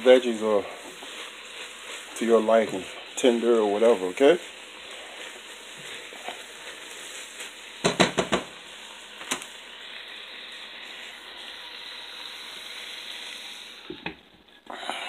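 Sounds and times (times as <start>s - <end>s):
food sizzling in a pot: 0.0s - 15.0s
spatula knocking on a pot: 7.8s - 8.5s.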